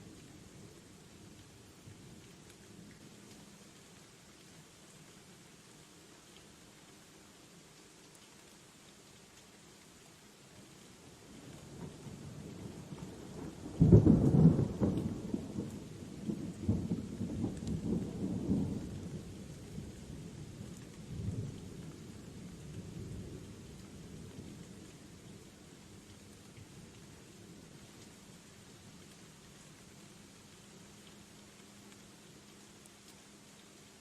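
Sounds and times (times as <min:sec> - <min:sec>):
light steady rain: 0:00.0 - 0:34.0
thunder cracking and rolling: 0:13.8 - 0:15.6.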